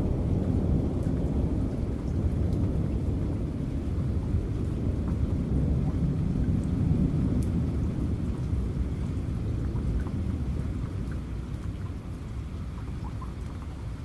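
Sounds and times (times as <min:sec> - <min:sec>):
thunder rumbling: 0:00.0 - 0:11.2
heavy rain: 0:00.0 - 0:14.0.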